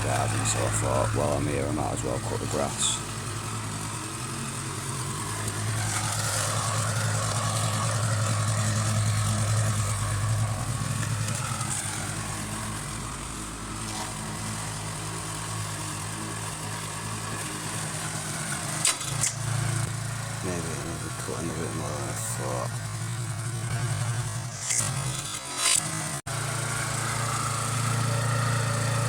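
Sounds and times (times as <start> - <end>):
lawn mower engine running: 0.0 - 29.0.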